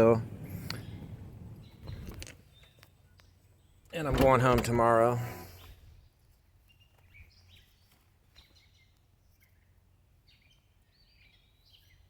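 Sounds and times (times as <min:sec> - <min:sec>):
faint bird chirps: 0:05.5 - 0:12.0.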